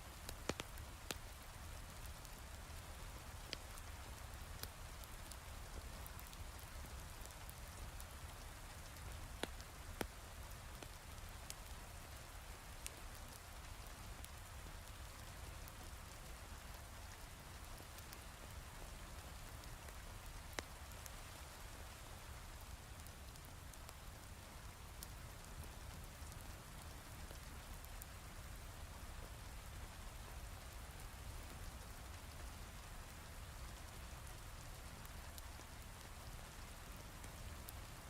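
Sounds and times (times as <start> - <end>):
wood fire popping: 0.3 - 2.1, 3.5 - 10.2.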